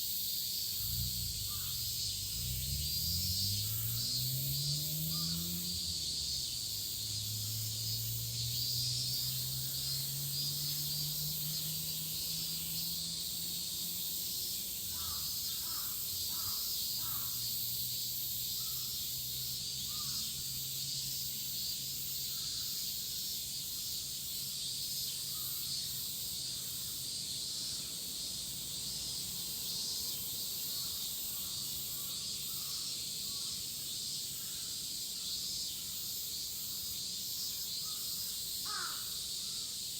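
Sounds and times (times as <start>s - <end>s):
cicadas buzzing: 0.0s - 39.9s
crows cawing: 14.9s - 17.4s, 38.6s - 39.2s.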